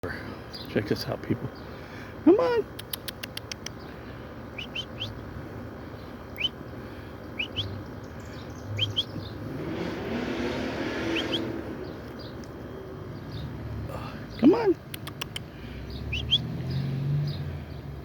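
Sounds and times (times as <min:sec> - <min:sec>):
small birds chirping: 0:00.0 - 0:10.1, 0:10.9 - 0:18.0
broad rushing noise: 0:08.7 - 0:17.3.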